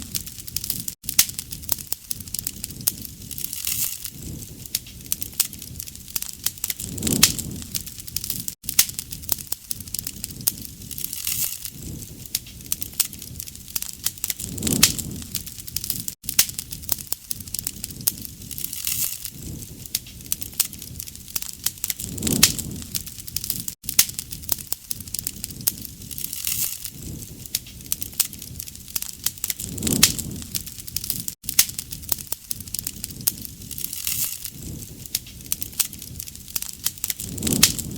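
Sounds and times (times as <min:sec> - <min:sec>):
soft whoosh of fire: 0:00.0 - 0:37.9
wood fire crackling: 0:00.0 - 0:37.9.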